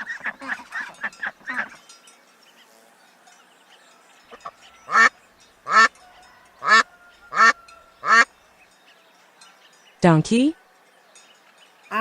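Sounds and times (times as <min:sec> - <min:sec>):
duck quacking: 0:04.9 - 0:05.1, 0:05.7 - 0:05.9, 0:06.6 - 0:08.3.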